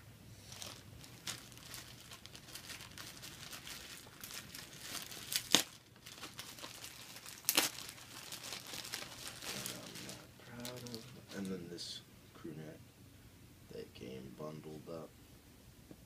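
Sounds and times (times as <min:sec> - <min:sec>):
packaging crinkling and rustling: 0:00.5 - 0:11.5.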